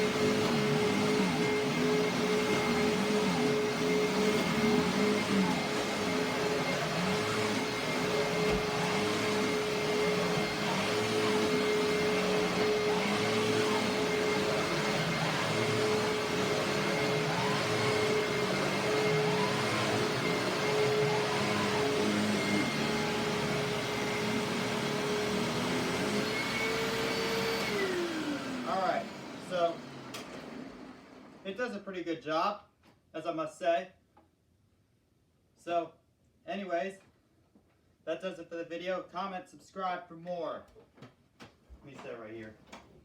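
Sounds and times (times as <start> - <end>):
vacuum cleaner running: 0.0 - 31.5.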